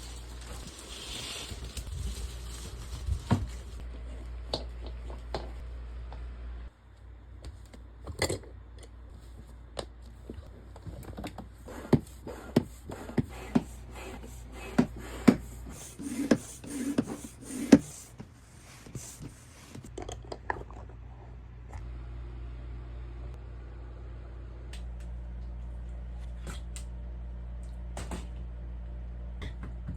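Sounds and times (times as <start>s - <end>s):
packaging rustling: 0.0s - 3.8s.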